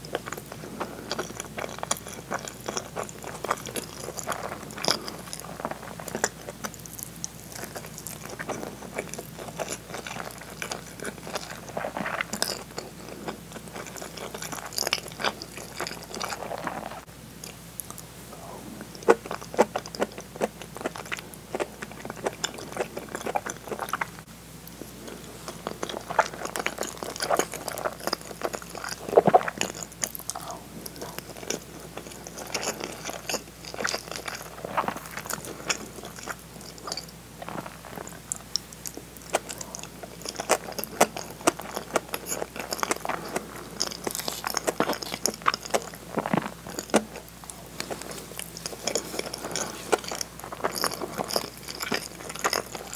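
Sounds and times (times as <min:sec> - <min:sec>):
person chewing with mouth clicks: 0:00.0 - 0:52.9.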